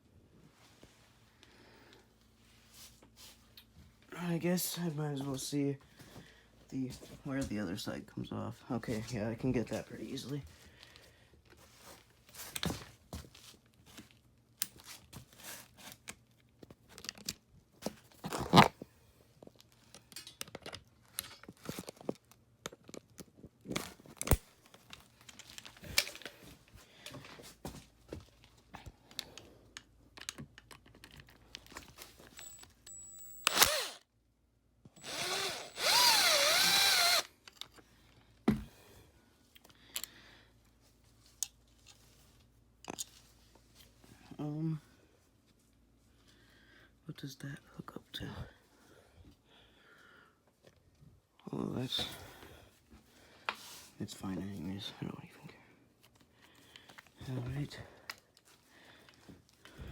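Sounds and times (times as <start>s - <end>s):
hand tools clinking: 32.3s - 33.7s
power drill spinning: 32.3s - 34.0s, 35.0s - 37.3s.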